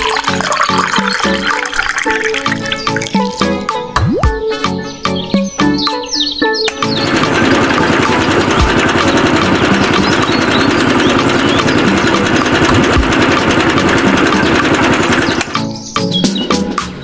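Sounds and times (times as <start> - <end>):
engine running at fast beat: 6.9 - 15.7.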